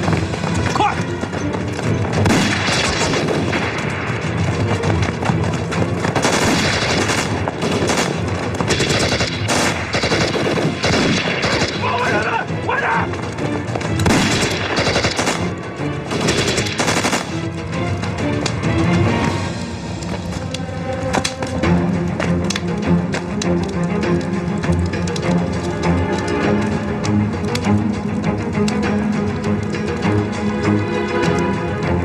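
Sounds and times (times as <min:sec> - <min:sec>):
rapid gunshots: 0:02.1 - 0:04.8, 0:05.6 - 0:12.4, 0:14.0 - 0:17.5.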